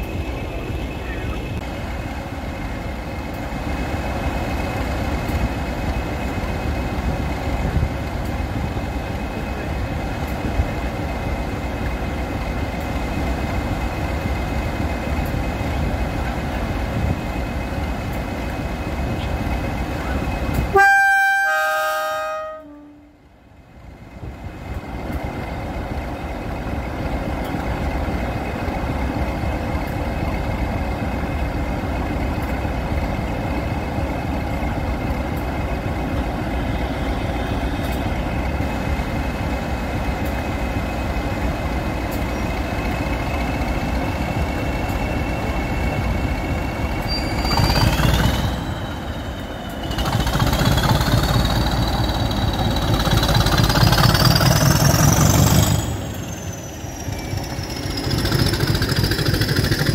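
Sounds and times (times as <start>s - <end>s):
diesel locomotive engine idling: 0.0s - 59.9s
two-note horn blast: 20.8s - 23.1s.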